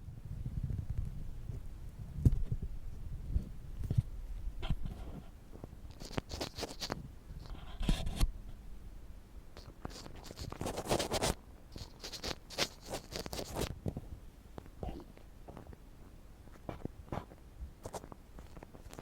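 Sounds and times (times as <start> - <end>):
ear pick scratching: 3.3 - 8.4, 9.6 - 14.0, 16.5 - 19.0.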